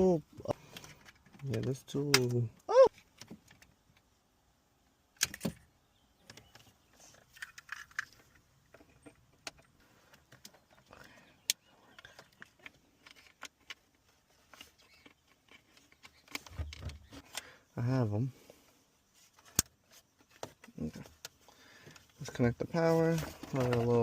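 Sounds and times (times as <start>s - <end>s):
plastic and metal parts clicking: 0.6s - 4.1s, 5.2s - 17.5s, 23.1s - 24.0s.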